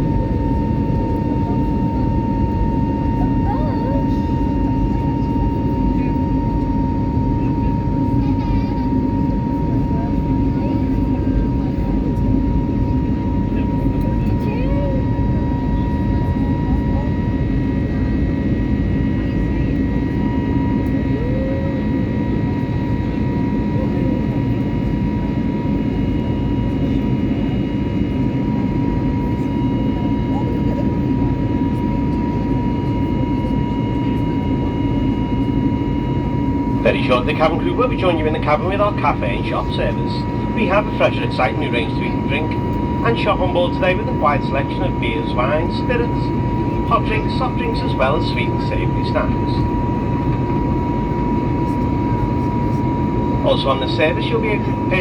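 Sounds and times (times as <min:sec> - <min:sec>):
airplane cabin noise: 0:00.0 - 0:55.0
jet engines rumbling and whining: 0:00.0 - 0:55.0
high hum: 0:34.6 - 0:55.0.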